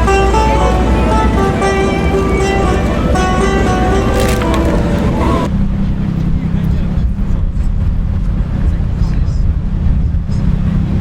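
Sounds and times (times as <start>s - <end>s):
plucked string instrument: 0.0s - 5.5s.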